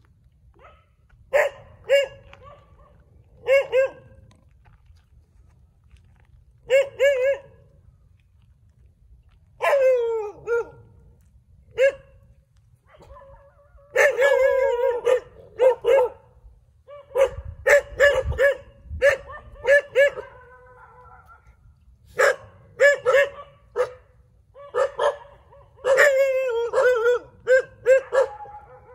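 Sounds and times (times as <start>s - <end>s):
dogs barking: 0.6s - 4.2s, 6.7s - 7.6s, 11.8s - 12.1s, 12.9s - 16.3s, 16.9s - 28.9s.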